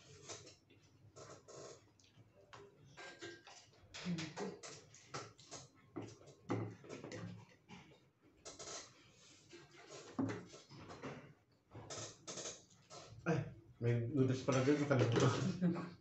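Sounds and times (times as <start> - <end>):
chewing and lip-smacking: 1.8 - 6.4.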